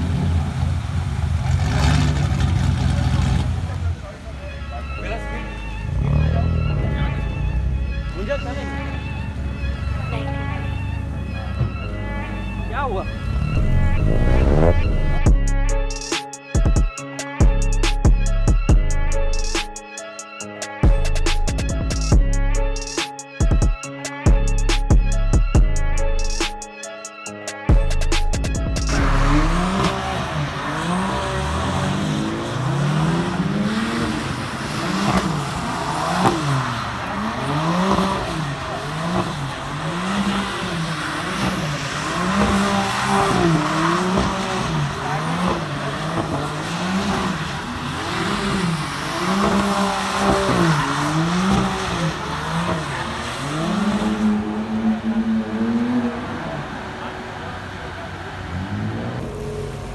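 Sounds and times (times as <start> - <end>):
car engine revving: 0.0 - 15.4, 27.8 - 59.9
tyre squeal: 28.9 - 54.6.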